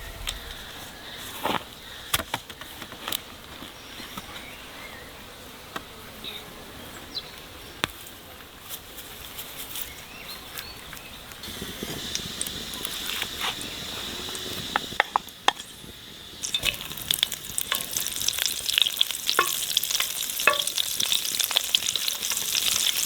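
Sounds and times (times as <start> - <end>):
insects buzzing: 11.4 - 23.0.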